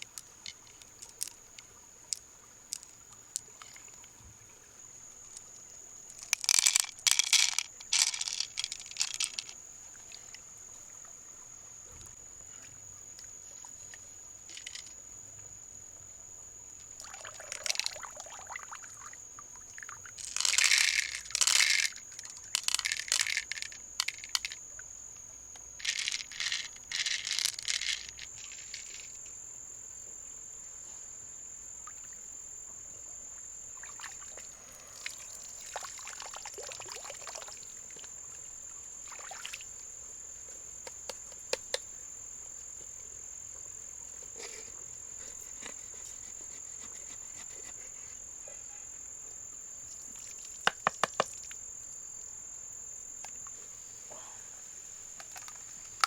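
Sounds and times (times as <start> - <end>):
insect trill: 0.0 - 56.0
water splashing and pouring: 17.0 - 19.2, 33.8 - 37.8, 39.0 - 39.7.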